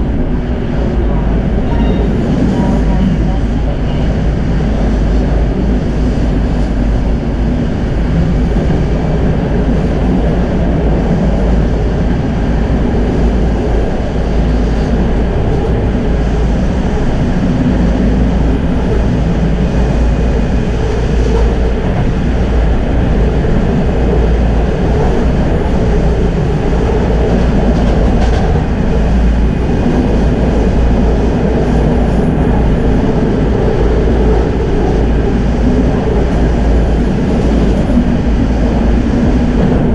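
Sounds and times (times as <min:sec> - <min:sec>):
tram wheels rumbling on rails: 0:00.0 - 0:39.9.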